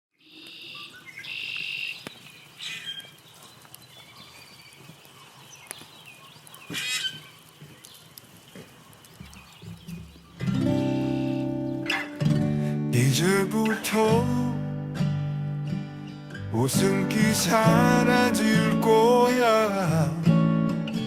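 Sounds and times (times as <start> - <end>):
birds calling: 0.2 - 12.3
faint clicks: 1.5 - 10.8
acoustic guitar chords: 10.4 - 21.0.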